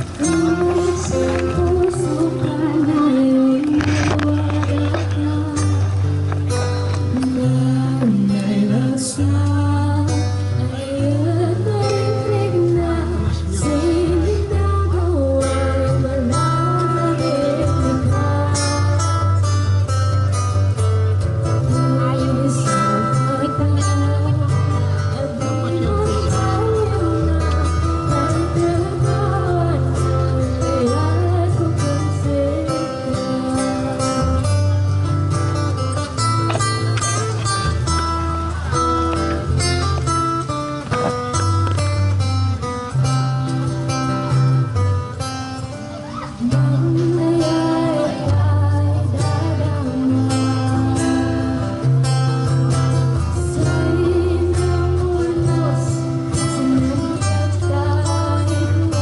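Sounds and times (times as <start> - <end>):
person singing: 0.0 - 6.0, 7.1 - 19.6, 21.6 - 34.6, 46.2 - 59.0
acoustic guitar strumming: 0.0 - 59.0
bass notes: 0.0 - 59.0.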